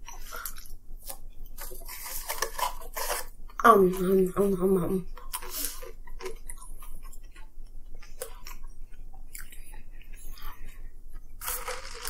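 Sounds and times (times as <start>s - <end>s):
chewing with mouth clicks: 5.2s - 12.0s.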